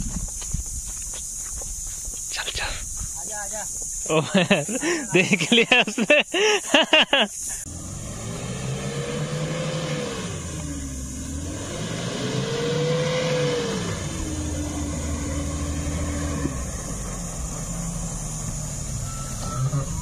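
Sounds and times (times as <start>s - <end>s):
vehicle engine driving through sand: 7.6s - 20.0s.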